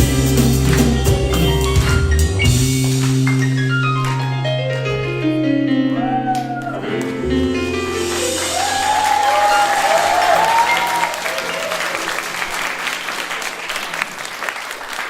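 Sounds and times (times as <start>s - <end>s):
live band final chord: 0.0s - 13.1s
audience applauding and whooping: 6.0s - 7.3s, 7.9s - 15.0s.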